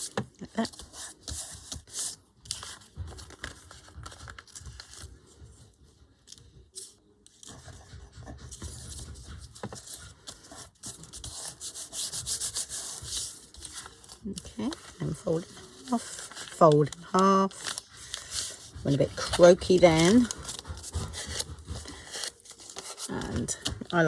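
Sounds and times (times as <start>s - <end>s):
paper rustling and rubbing: 0.0s - 6.6s, 7.3s - 24.0s.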